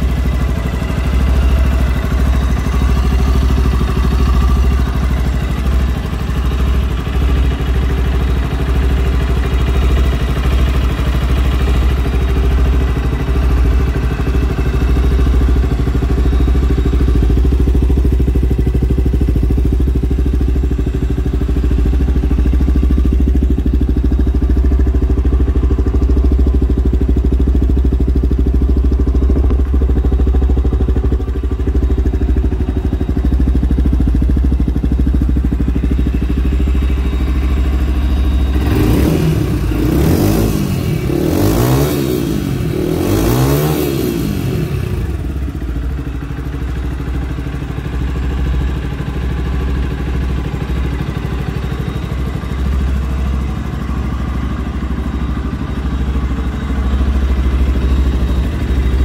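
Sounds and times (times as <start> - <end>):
motorcycle engine idling: 0.0 - 59.0
engine revving: 38.5 - 45.2.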